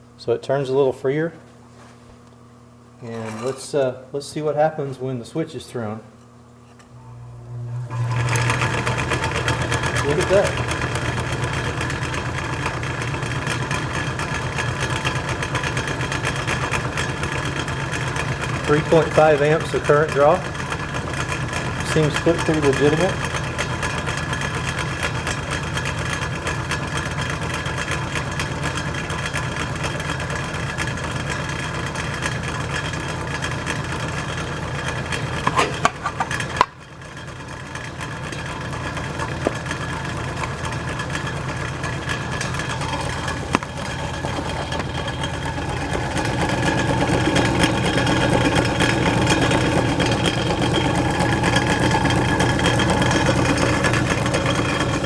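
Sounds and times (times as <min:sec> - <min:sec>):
refrigerator motor humming: 0:00.0 - 0:55.0.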